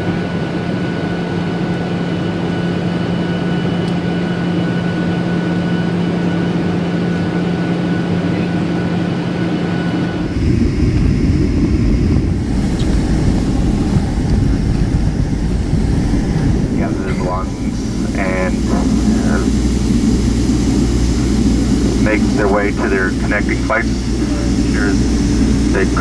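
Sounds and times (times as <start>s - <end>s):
deep engine rumble: 5.7s - 26.0s
aircraft cabin hum: 7.0s - 26.0s.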